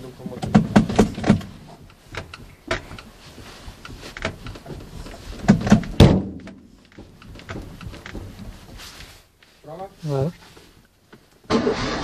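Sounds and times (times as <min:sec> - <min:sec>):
heavy thunks on a car: 0:00.3 - 0:03.0, 0:05.4 - 0:08.5.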